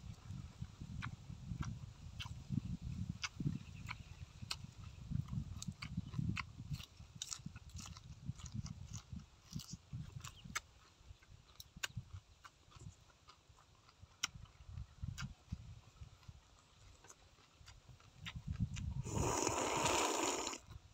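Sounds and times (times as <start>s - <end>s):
crisp chewing crunches: 0.6s - 20.9s
wet mouth clicks: 17.1s - 20.8s.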